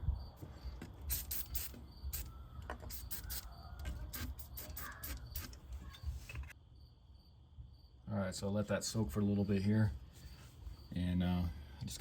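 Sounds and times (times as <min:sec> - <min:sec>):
aerosol spray hissing: 0:01.1 - 0:02.3, 0:02.9 - 0:03.5.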